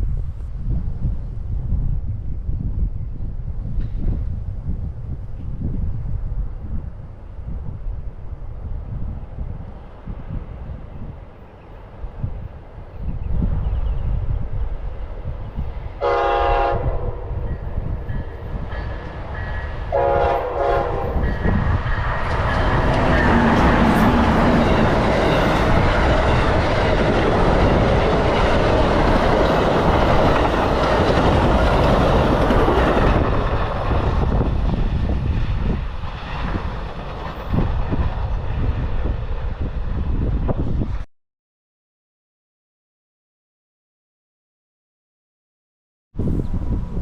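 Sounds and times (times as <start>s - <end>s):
train passing close by: 0.0s - 41.1s, 46.2s - 47.0s
train horn blasts: 16.0s - 17.7s, 19.9s - 21.5s.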